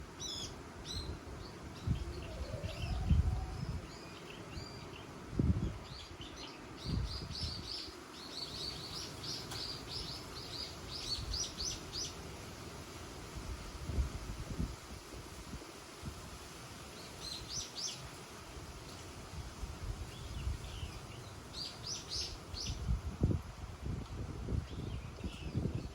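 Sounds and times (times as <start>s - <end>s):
songbirds chirping: 0.0s - 13.1s, 16.8s - 23.4s
wind buffeting microphone: 1.8s - 4.0s, 5.2s - 7.9s, 13.4s - 16.5s, 21.8s - 25.9s.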